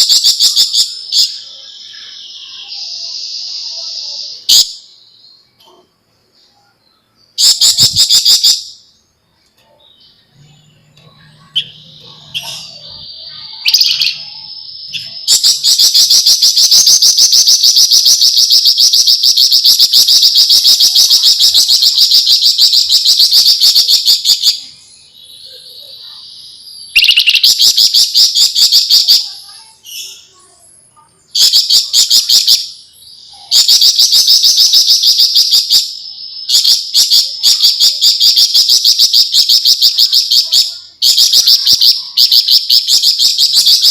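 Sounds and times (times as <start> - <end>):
bird whistled notes: 9.7 - 30.4.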